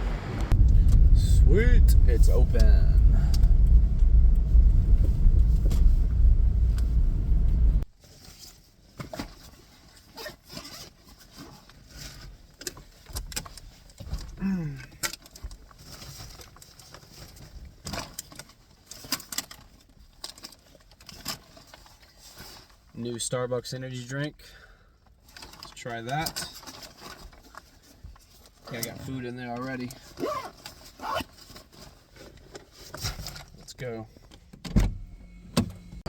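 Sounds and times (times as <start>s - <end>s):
car engine rumbling: 0.0s - 7.9s, 34.2s - 36.0s.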